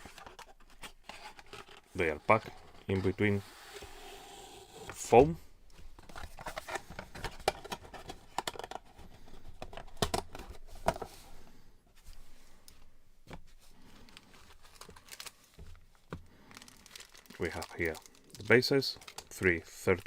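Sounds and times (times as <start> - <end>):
packing foam rustling: 14.0 - 20.0.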